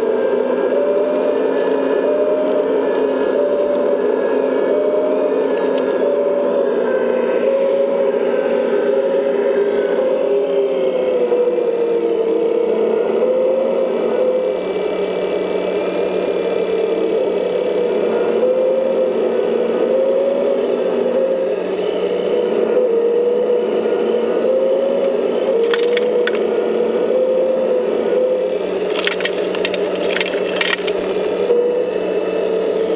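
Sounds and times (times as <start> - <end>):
electric motor and pump whining: 0.0 - 32.9
short clicks: 25.6 - 26.5, 28.8 - 31.2.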